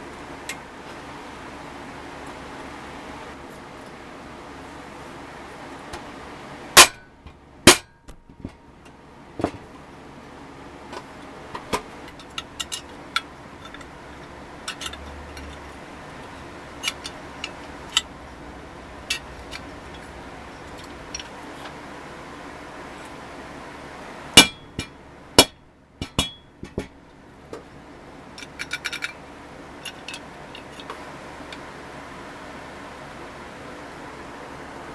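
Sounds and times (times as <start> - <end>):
steady low hum: 0.0 - 34.9
small hard parts clicking: 12.0 - 18.2, 19.0 - 21.8, 28.4 - 29.2.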